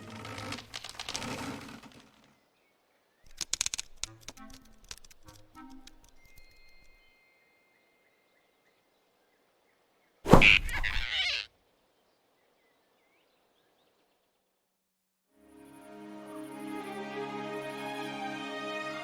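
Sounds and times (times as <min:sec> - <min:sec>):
faint birdsong: 0:00.0 - 0:14.8
cartoon impact sound effect: 0:10.3 - 0:11.4.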